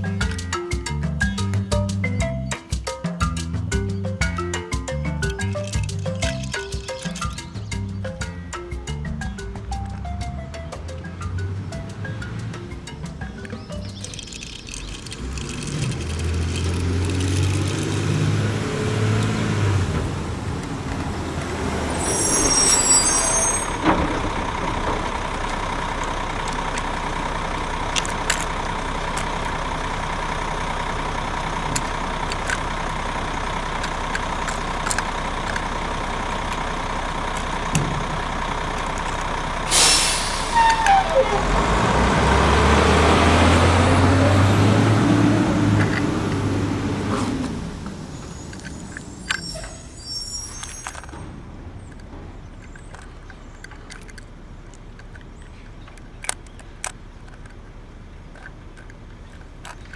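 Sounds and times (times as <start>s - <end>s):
truck engine rumble: 0.0s - 59.9s
loud air hiss: 39.7s - 41.3s.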